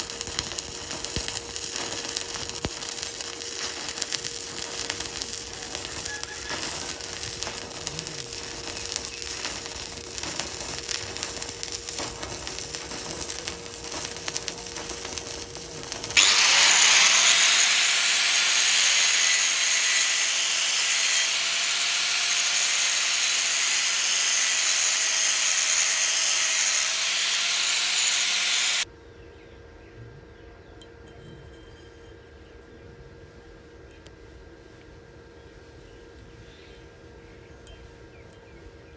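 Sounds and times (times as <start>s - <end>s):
loud steady hiss with tone: 0.0s - 28.8s
welding arc crackling: 0.0s - 28.9s.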